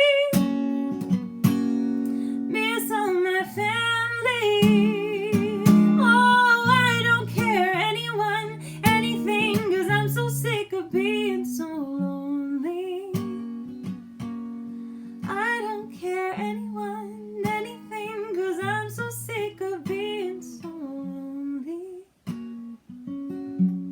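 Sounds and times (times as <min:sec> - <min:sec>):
strummed acoustic guitar: 0:00.0 - 0:20.9, 0:22.2 - 0:23.9.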